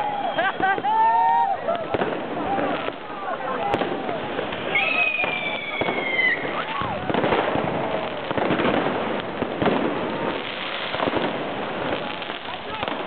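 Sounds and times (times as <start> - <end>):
firecrackers crackling: 0.0 - 13.0
aerial rockets bursting: 1.9 - 13.0.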